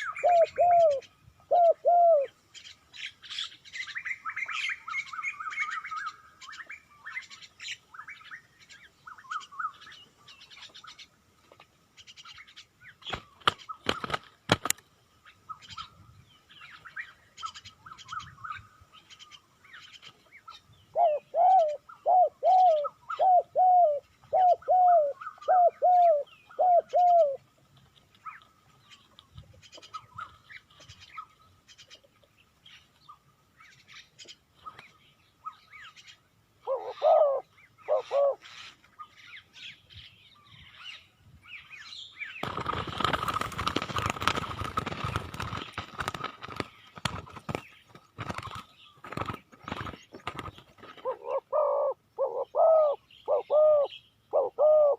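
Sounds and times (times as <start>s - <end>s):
dove cooing: 0.0s - 2.4s, 20.9s - 27.4s, 36.6s - 38.5s, 49.7s - 54.9s.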